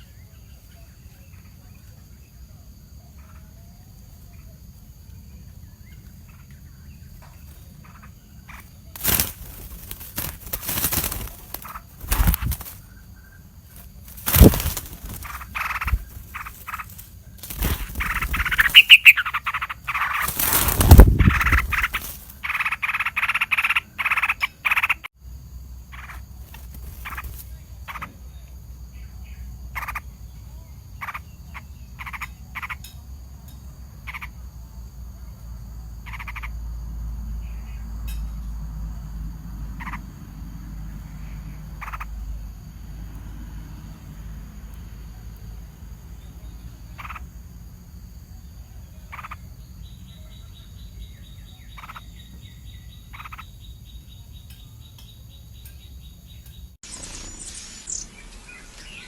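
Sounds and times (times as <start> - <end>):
rustling: 9.0 - 13.0, 13.7 - 19.0, 20.0 - 22.4.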